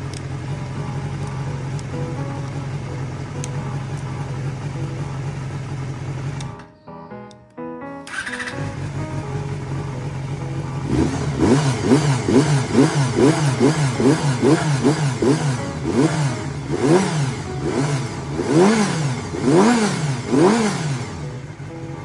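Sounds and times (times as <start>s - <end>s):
motorcycle engine revving: 2.8s - 6.6s, 8.1s - 21.7s.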